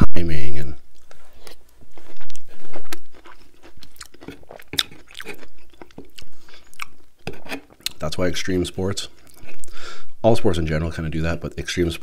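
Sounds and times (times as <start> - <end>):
wet chewing mouth clicks: 1.0 - 7.0.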